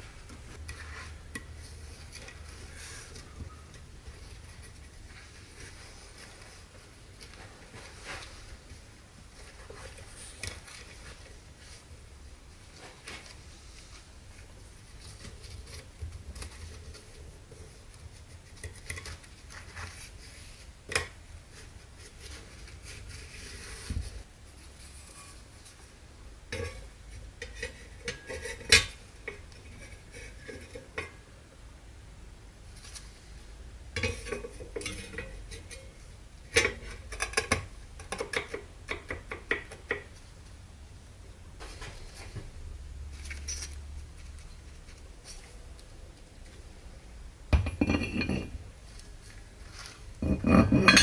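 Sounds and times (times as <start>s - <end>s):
metal tools clinking and clattering: 47.6s - 48.6s, 50.4s - 51.0s.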